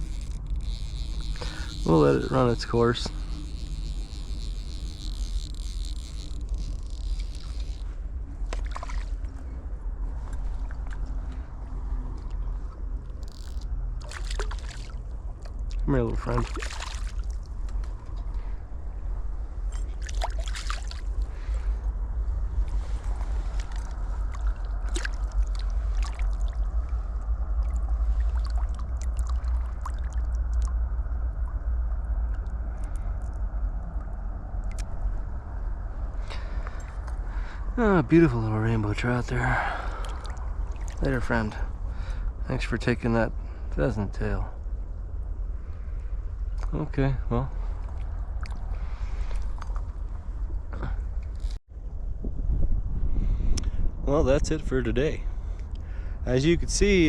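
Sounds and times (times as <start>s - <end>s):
river water flowing: 0.0s - 9.5s, 13.0s - 17.8s, 19.8s - 21.6s, 22.7s - 30.6s, 39.4s - 41.2s
deep rumble: 0.0s - 57.0s
water splashes: 1.1s - 9.4s, 13.2s - 17.6s, 19.7s - 21.6s, 22.6s - 30.8s, 39.4s - 41.4s.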